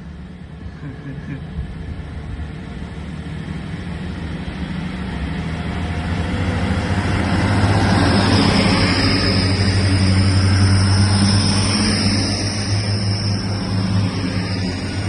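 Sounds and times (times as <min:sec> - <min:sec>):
diesel train engines droning: 0:00.0 - 0:15.0.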